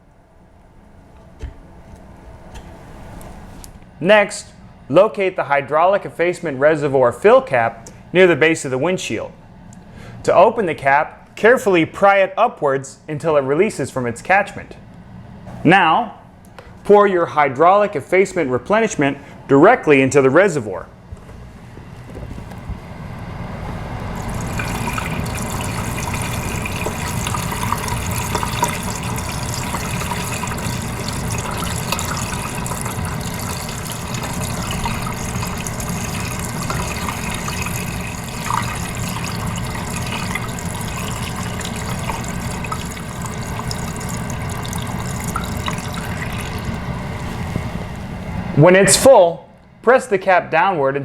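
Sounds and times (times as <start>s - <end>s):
fluid pouring into reservoir: 24.0s - 48.0s.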